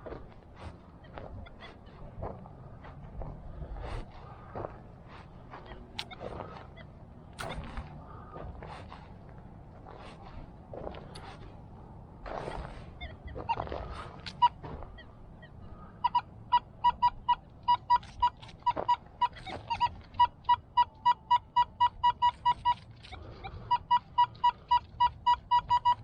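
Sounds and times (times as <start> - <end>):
metal detector beeping: 5.5 - 8.3, 12.4 - 26.0
digging scrapes and knocks: 7.4 - 11.6, 12.2 - 15.0.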